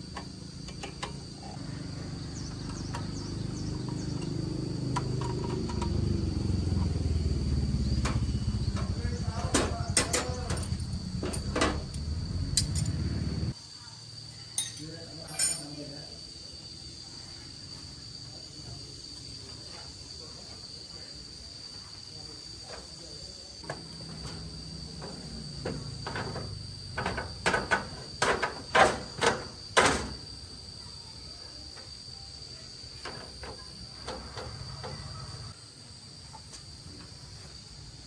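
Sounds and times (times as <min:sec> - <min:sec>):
crickets shrilling: 0:00.0 - 0:38.0
sharp knocks and clatters: 0:08.0 - 0:12.0, 0:25.0 - 0:30.2.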